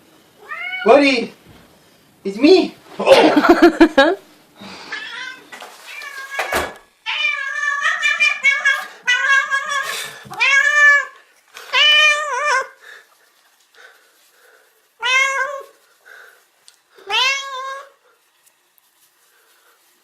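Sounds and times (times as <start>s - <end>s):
cat meowing: 0.4s - 0.9s, 4.8s - 12.8s, 15.0s - 15.8s, 17.0s - 18.0s.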